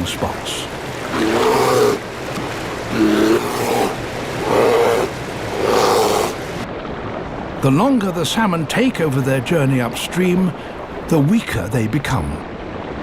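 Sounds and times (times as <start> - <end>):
river water rushing: 0.0 - 8.4
bears roaring and growling: 1.0 - 6.6.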